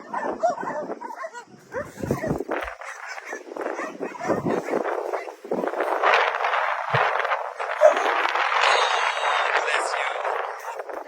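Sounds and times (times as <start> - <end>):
dogs whining and yipping: 0.0 - 5.3.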